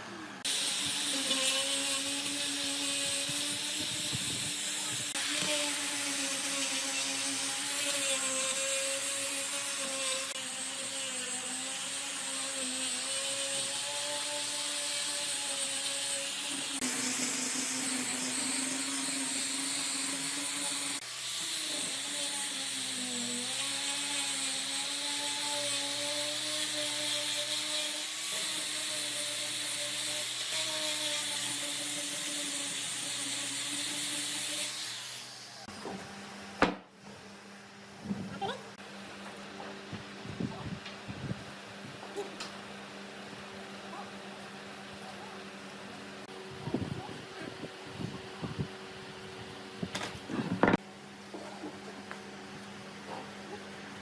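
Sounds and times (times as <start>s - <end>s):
electric power tool running: 0.0s - 35.8s.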